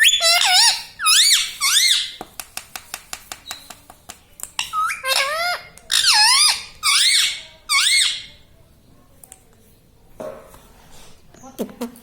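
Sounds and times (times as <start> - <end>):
parrot squeaky calls: 0.0 - 2.2, 4.6 - 8.4.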